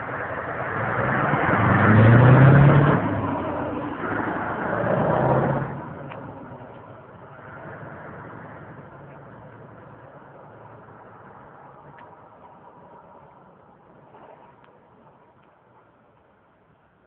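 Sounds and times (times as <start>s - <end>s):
diesel engine revving: 0.0s - 11.2s.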